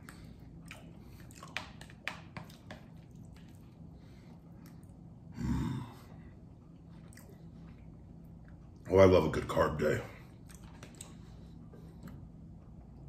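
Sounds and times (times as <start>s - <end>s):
faint chewing: 0.0s - 5.1s, 6.6s - 8.9s, 10.2s - 12.3s.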